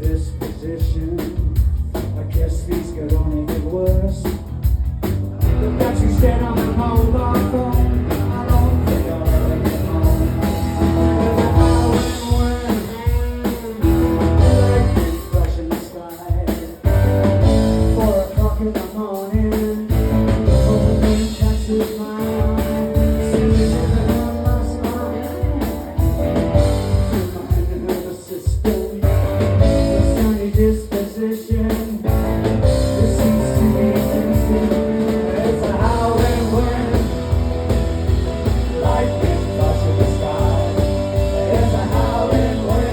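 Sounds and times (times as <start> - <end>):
drum kit: 0.0 - 42.9
electric guitar: 5.3 - 15.5, 19.9 - 27.9, 32.1 - 42.9.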